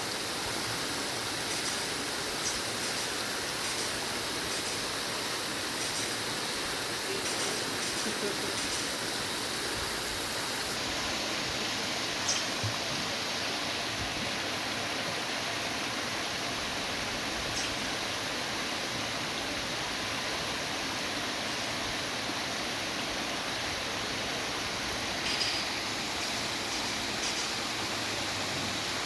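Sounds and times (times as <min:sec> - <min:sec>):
flowing water rushing: 0:00.0 - 0:29.0.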